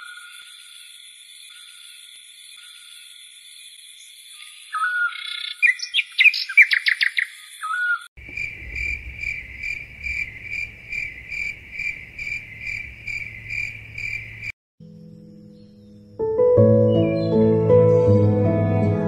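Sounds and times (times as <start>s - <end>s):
birds chirping: 4.4s - 14.5s
faint low rumble: 8.2s - 13.0s
insects trilling in pulses: 8.2s - 14.5s
high insect drone: 8.2s - 15.4s.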